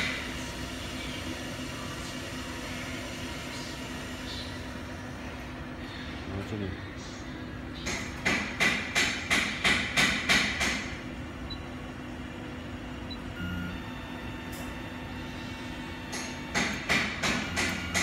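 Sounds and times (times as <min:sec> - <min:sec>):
steady low hum: 0:00.0 - 0:18.0
sharp knocks: 0:16.1 - 0:18.0.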